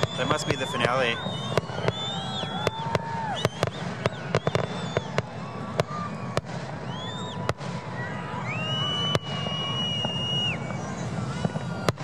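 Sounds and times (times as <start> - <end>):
firework shells bursting: 0.0 - 8.0
whistling rockets: 0.0 - 12.0.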